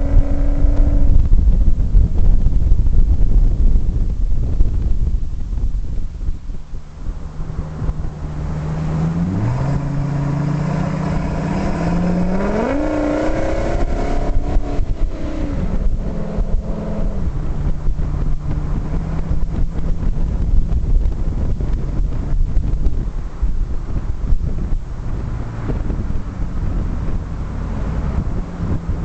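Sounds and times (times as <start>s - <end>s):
engine revving: 0.0s - 1.4s, 7.4s - 23.0s, 24.5s - 29.0s.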